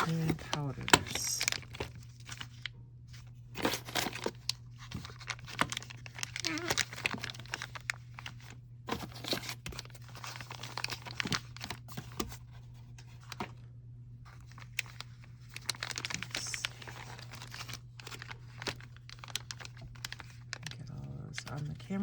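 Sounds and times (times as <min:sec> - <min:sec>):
plastic packaging crinkling: 0:00.0 - 0:13.6, 0:14.3 - 0:22.0.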